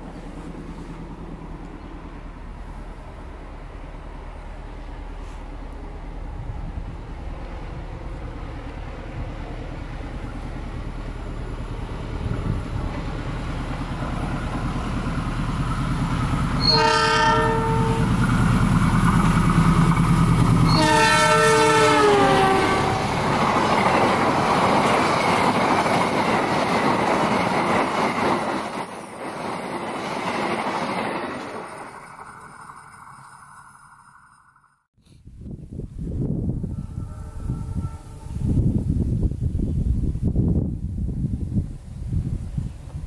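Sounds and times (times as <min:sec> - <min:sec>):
locomotive engine rumble: 0:00.0 - 0:28.0
wheels on rail rushing: 0:00.0 - 0:34.9
train horn blasts: 0:16.6 - 0:18.3, 0:20.6 - 0:23.3, 0:36.5 - 0:38.9.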